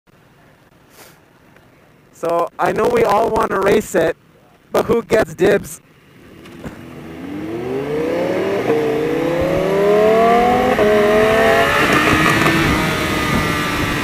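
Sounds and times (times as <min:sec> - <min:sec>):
engine accelerating hard: 0:06.2 - 0:14.0.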